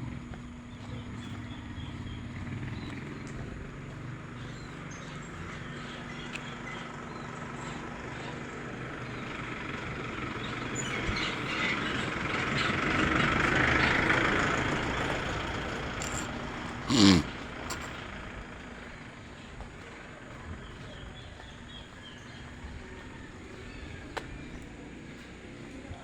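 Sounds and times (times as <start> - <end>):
vehicle passing by: 0.0 - 26.0.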